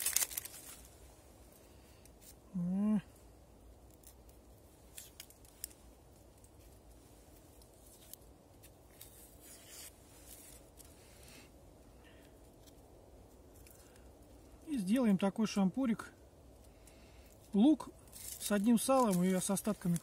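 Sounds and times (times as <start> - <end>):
onion skin crackling and tearing: 0.0 - 1.0, 3.6 - 11.0, 12.2 - 14.6, 17.4 - 20.0.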